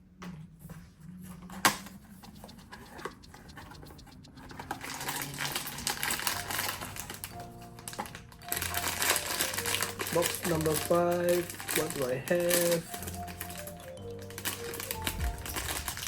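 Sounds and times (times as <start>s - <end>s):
packaging crinkling and rustling: 4.8s - 16.0s.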